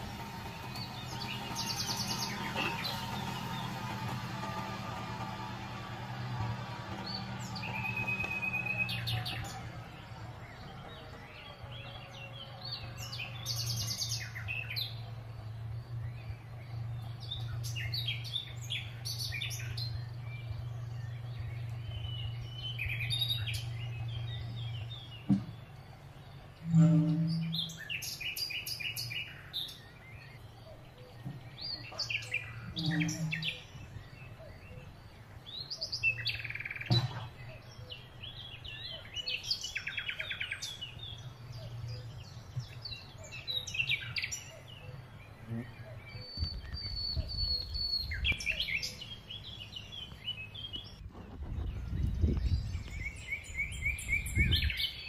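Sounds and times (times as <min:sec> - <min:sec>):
low rumble: 0:00.0 - 0:28.0, 0:45.2 - 0:54.8
low steady hum: 0:00.0 - 0:54.8
songbirds chirping: 0:00.0 - 0:55.0.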